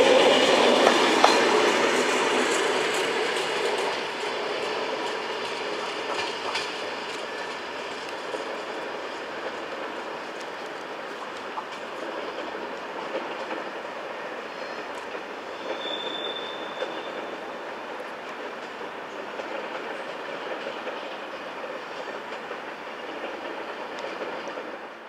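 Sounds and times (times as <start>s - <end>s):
clickety-clack of rail joints: 0.0s - 25.0s
train coaches rolling: 0.0s - 25.0s
high wheel squeal: 14.2s - 17.5s.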